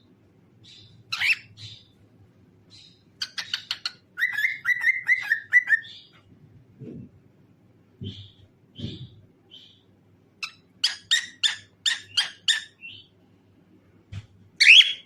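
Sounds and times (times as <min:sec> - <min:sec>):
cockatiel chirping and whistling: 0:00.7 - 0:01.9, 0:02.8 - 0:06.0, 0:10.4 - 0:13.1, 0:14.6 - 0:15.0.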